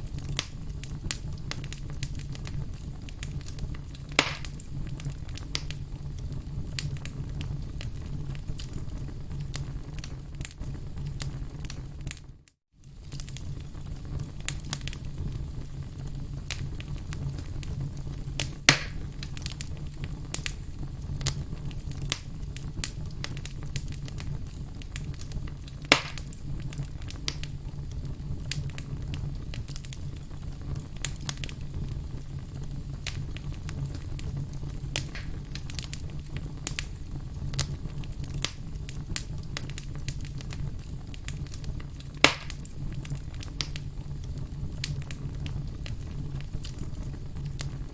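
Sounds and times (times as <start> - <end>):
firewood crackling: 0.0 - 47.9
low rumble of flame: 0.0 - 47.9
loud pops of burning wood: 0.1 - 12.2, 12.8 - 47.9.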